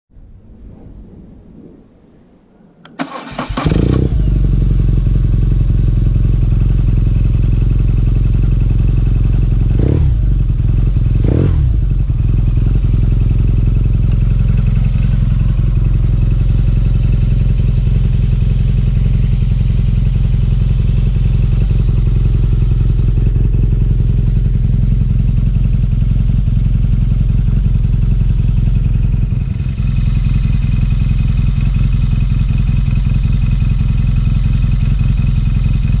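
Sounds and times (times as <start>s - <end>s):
motorcycle engine idling: 3.0s - 36.0s.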